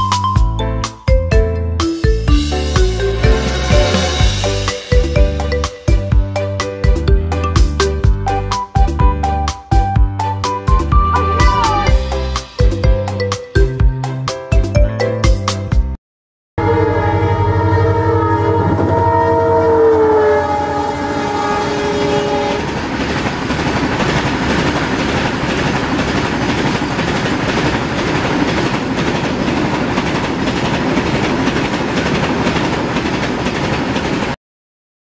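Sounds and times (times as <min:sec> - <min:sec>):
train horn chord: 0:03.1 - 0:04.7, 0:16.6 - 0:22.7
train wheels clattering over rail joints: 0:22.6 - 0:34.4.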